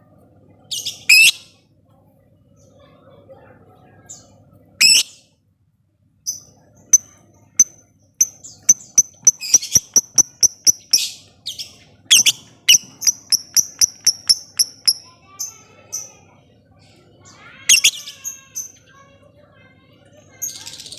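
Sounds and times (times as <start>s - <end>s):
bird harsh squawk: 4.8s - 5.1s, 12.1s - 15.0s
bird clicking chirps: 7.6s - 11.1s, 12.1s - 15.0s
bird chattering: 7.6s - 15.1s, 17.7s - 18.0s.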